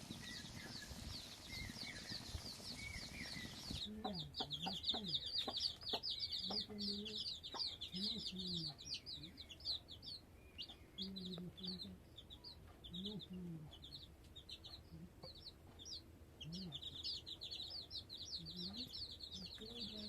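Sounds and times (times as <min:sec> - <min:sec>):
chicks chirping: 0:00.0 - 0:20.0
hen clucking: 0:03.2 - 0:10.0, 0:10.6 - 0:20.0.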